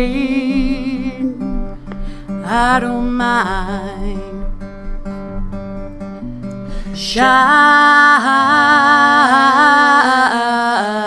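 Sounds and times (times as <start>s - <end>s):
acoustic guitar strumming: 0.0s - 11.0s
voices singing long notes: 7.1s - 11.0s.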